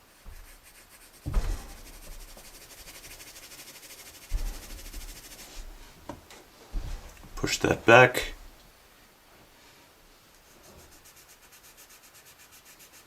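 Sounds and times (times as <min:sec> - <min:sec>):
rubbing on drawing paper: 0:00.0 - 0:06.0, 0:10.4 - 0:13.0
dull knocks on drawing surface: 0:01.2 - 0:02.7, 0:04.3 - 0:05.8.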